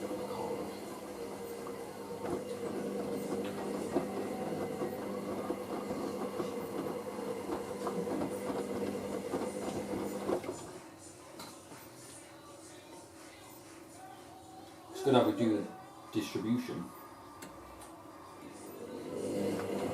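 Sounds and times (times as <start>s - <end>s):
washing machine drum hum: 0.0s - 10.8s, 18.7s - 19.9s.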